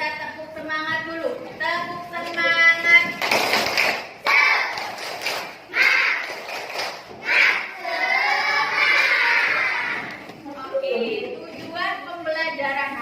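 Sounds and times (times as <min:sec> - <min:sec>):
voices calling out together: 0:05.7 - 0:06.5, 0:07.2 - 0:10.2.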